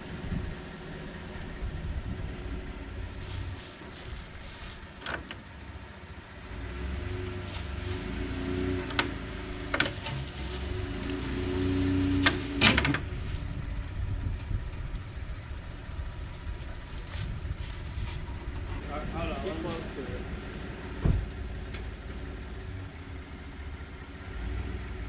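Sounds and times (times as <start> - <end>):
motor vehicle rumbling: 0.0 - 25.0
sharp knocks and clunks: 21.0 - 21.9.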